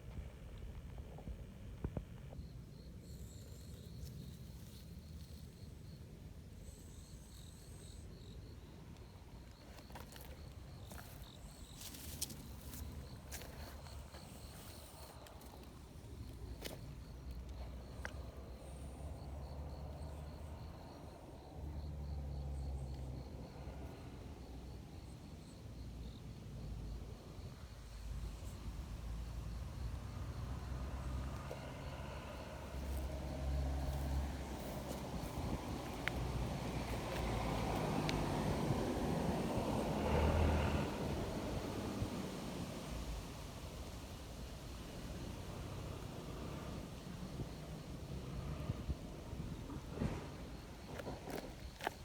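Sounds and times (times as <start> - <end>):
insect chirping trill: 2.3 - 52.0
low wind rumble: 28.3 - 52.0.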